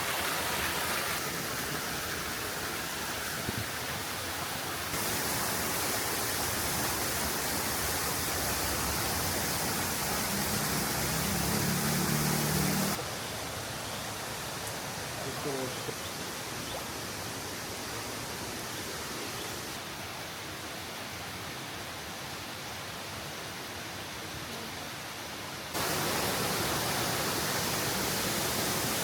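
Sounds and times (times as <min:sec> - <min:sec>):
waterfall roaring: 0:00.0 - 0:19.8, 0:25.8 - 0:29.0.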